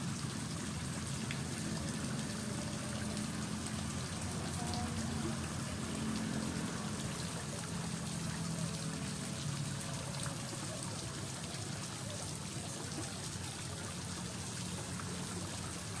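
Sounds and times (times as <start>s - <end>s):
water drips and splashes: 0.0s - 16.0s
water gurgling and trickling: 0.0s - 16.0s.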